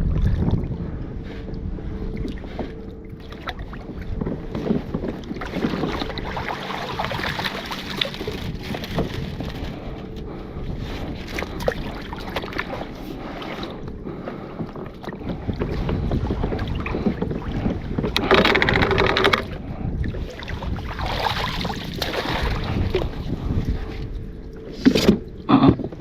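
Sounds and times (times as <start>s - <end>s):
water splashing around a kayak: 0.0s - 26.0s
wind buffeting microphone: 0.0s - 26.0s
small knocks: 18.1s - 19.5s.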